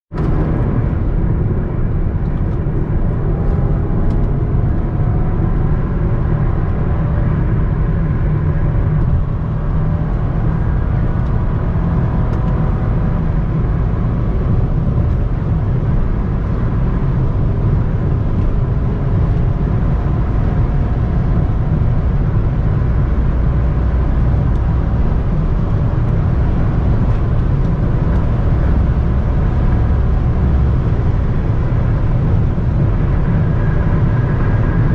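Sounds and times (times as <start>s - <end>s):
car road and engine rumble: 0.1s - 34.9s.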